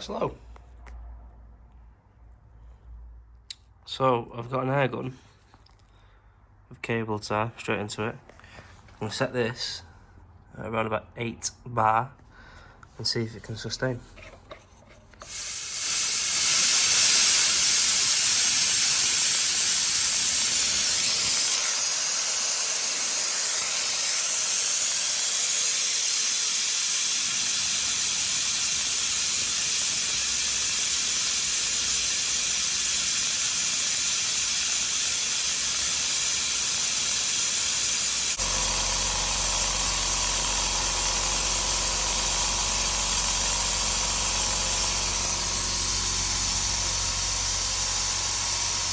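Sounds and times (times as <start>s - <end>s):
compressed air hissing: 15.2s - 48.9s
compressor motor humming: 15.2s - 48.9s.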